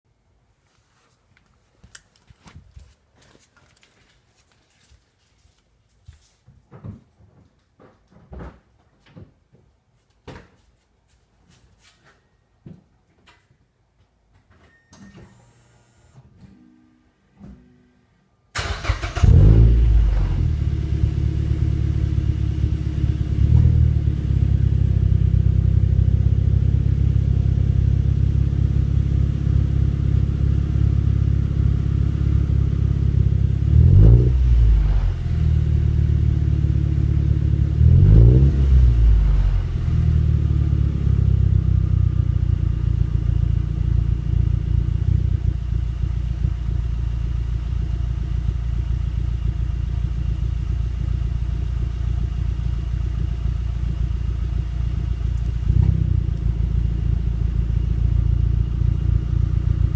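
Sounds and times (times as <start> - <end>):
car engine starting: 18.5 - 59.9
car engine revving: 18.6 - 25.2, 30.1 - 41.6
car engine idling: 18.6 - 33.9, 38.9 - 59.9.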